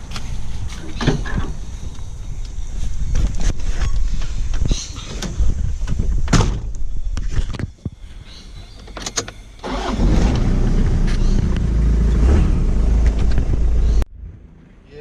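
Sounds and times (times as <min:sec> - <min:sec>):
car engine starting and running: 0:09.6 - 0:14.5.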